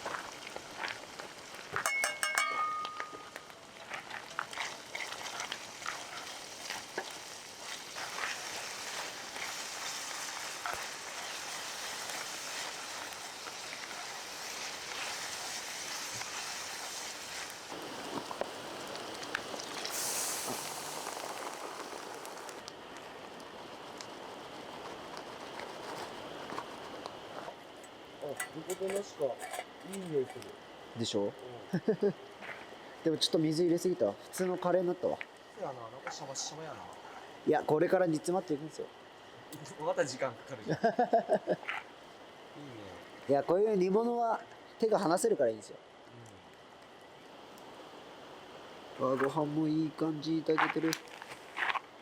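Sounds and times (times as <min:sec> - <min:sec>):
food sizzling in a pan: 0:00.0 - 0:28.8
utensil clinking against pan: 0:01.8 - 0:03.4.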